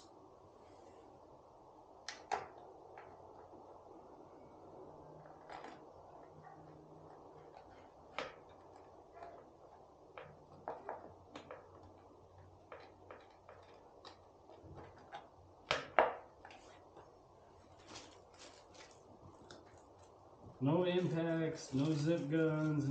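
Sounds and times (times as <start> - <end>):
hand tools clicking and knocking: 6.6 - 16.7.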